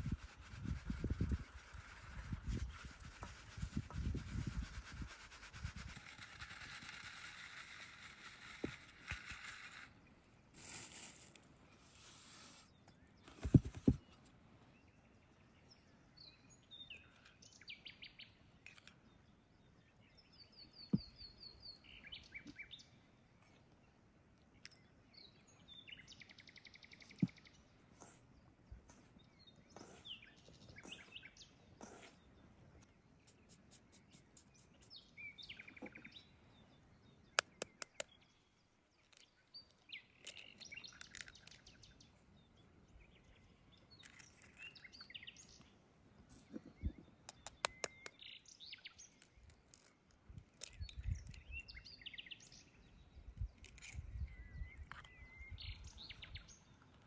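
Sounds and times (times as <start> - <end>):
birds chirping and trilling: 24.6 - 49.9, 50.6 - 57.0
sharp clicks: 37.4 - 38.2, 47.3 - 48.2.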